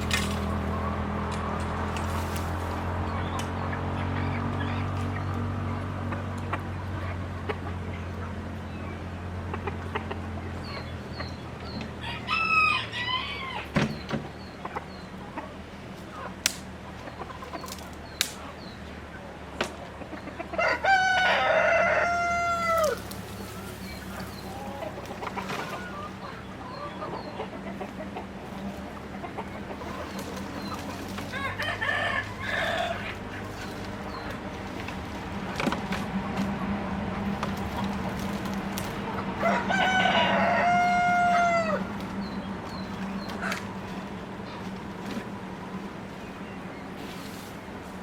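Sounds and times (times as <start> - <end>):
chickens clucking: 0.0 - 48.0
rooster crowing: 12.0 - 13.7, 20.5 - 23.0, 31.3 - 33.2, 39.4 - 41.9.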